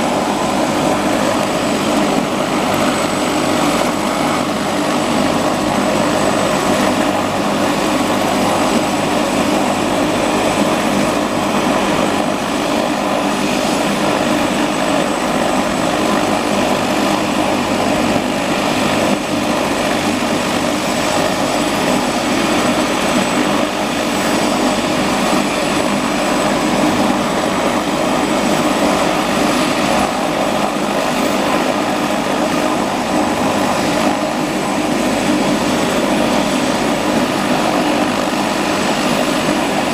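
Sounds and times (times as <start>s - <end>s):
helicopter rotor noise: 0.0s - 39.9s
helicopter turbine whine: 0.0s - 39.9s.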